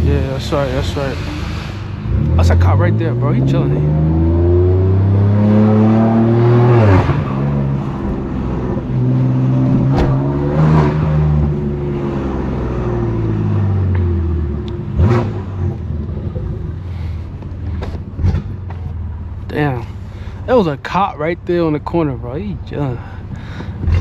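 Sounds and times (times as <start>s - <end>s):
car engine revving: 0.0s - 24.0s
exhaust cracks: 0.0s - 24.0s.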